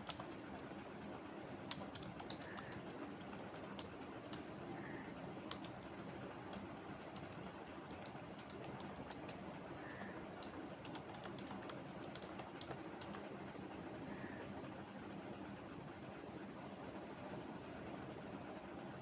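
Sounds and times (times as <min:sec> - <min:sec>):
keyboard keystroke clicks: 0:00.0 - 0:00.4, 0:01.7 - 0:04.5, 0:05.4 - 0:09.4, 0:10.4 - 0:13.2
low background hum: 0:00.0 - 0:19.0.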